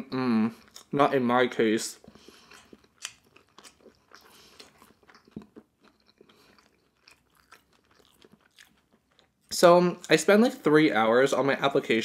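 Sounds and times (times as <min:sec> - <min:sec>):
chewing with wet mouth clicks: 0:02.0 - 0:10.2.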